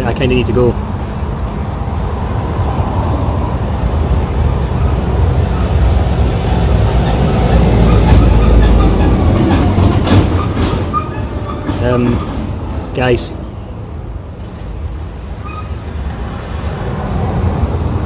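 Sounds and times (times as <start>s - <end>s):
heavy vehicle passing: 0.0s - 18.0s
sharp knocks: 7.9s - 11.0s.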